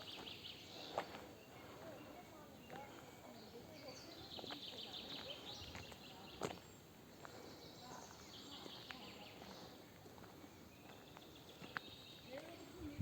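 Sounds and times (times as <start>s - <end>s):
faint outdoor ambience: 0.0s - 13.0s.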